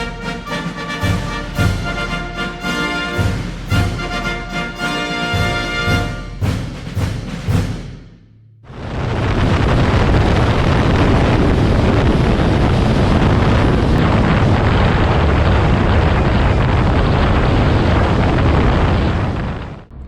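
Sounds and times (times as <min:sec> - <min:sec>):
wind rushing over microphone: 0:08.6 - 0:20.0.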